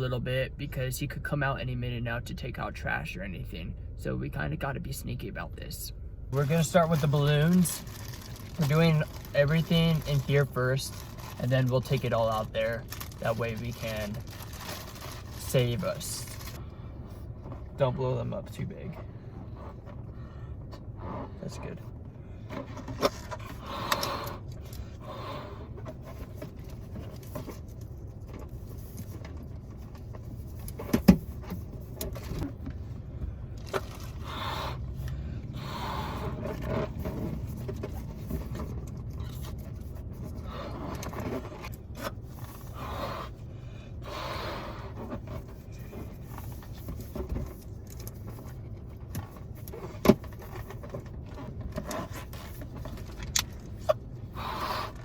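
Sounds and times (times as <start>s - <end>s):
steady low hum: 0.0s - 55.0s
breathy puffs blowing up balloons: 34.0s - 37.2s, 42.5s - 45.5s, 53.8s - 55.0s.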